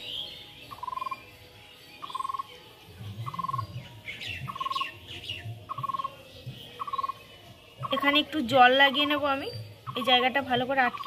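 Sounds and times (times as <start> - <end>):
downward-sweeping bird chirps: 0.0 - 1.3, 2.0 - 2.6, 3.2 - 6.2.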